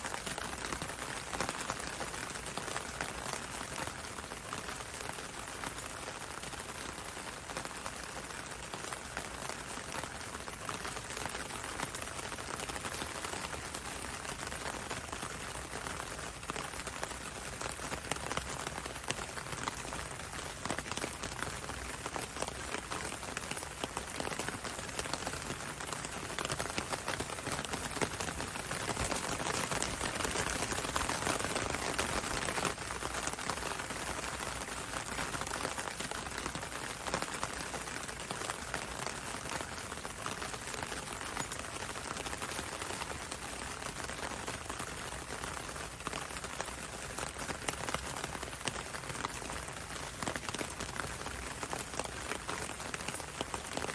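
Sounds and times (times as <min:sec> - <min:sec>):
rain hissing on road: 0:00.0 - 0:53.9
raindrops on a window: 0:00.0 - 0:53.9.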